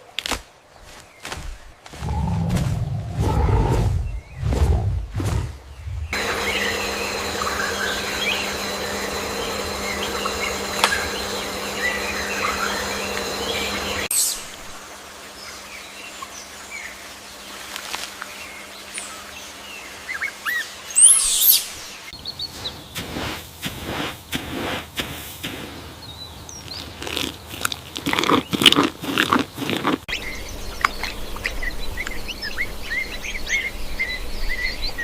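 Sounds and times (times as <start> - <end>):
birds chirping: 0.0 - 23.3, 25.4 - 35.0
steady hum: 2.0 - 15.5.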